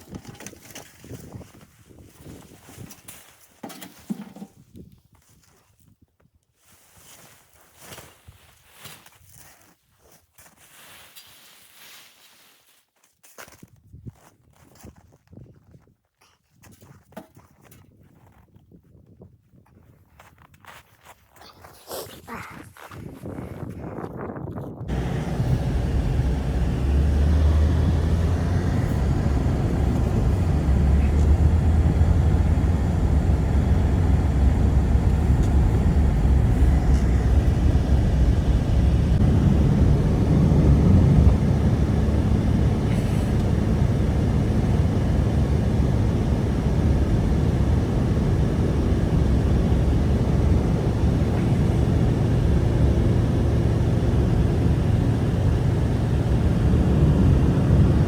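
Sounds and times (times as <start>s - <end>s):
blizzard wind roaring: 24.9s - 58.0s.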